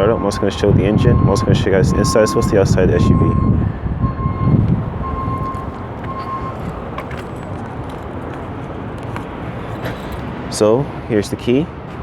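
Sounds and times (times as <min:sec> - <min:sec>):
traffic noise: 0:00.0 - 0:12.0
faint high beeping: 0:04.1 - 0:07.2.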